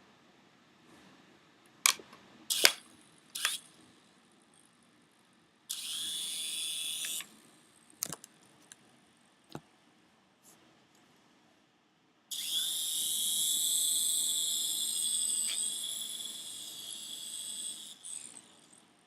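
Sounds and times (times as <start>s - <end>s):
toy helicopter motor whirring: 2.5s - 2.8s, 3.4s - 3.7s, 5.7s - 7.3s, 12.3s - 18.9s.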